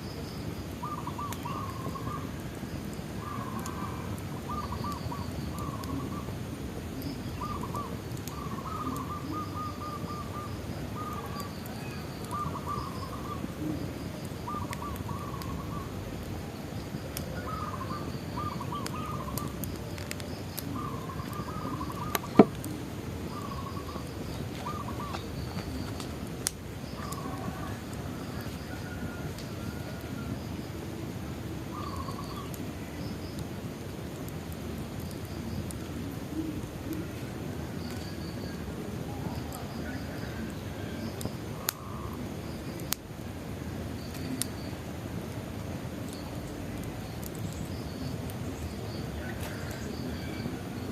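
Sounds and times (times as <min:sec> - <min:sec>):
bonfire crackling: 0:00.0 - 0:50.9
birds calling: 0:00.8 - 0:02.2, 0:07.0 - 0:13.6, 0:14.5 - 0:16.0, 0:16.8 - 0:29.2, 0:31.7 - 0:32.6.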